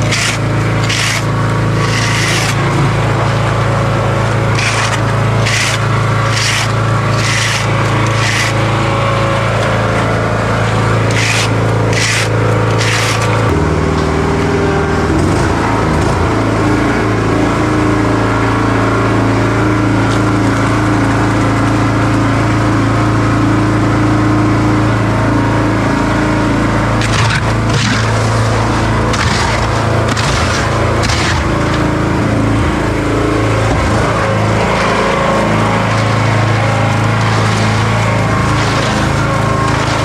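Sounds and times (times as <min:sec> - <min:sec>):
hand tool scraping wet concrete: 0:00.0 - 0:13.6, 0:26.6 - 0:40.0
construction machine engine running: 0:00.0 - 0:40.0.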